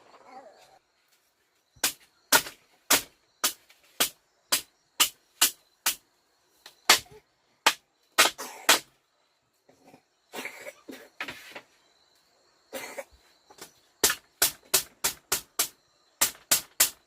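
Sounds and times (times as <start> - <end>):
hand tool striking: 1.8 - 6.0
scraping and rustling: 11.2 - 11.8.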